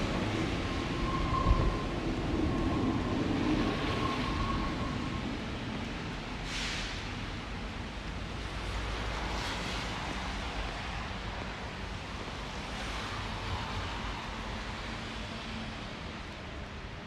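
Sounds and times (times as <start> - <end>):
traffic on wet street: 0.0 - 17.0
passing vehicle hiss: 3.7 - 11.6.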